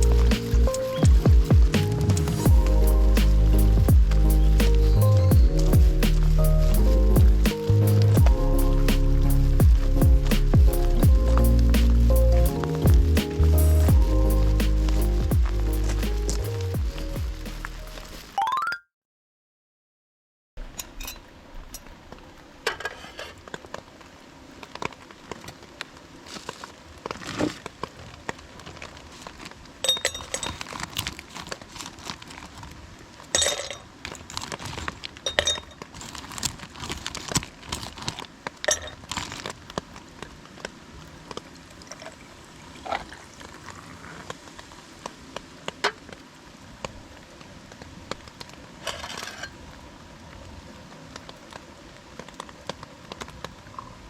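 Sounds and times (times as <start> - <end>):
rustling: 0.0 - 18.3, 22.8 - 42.2.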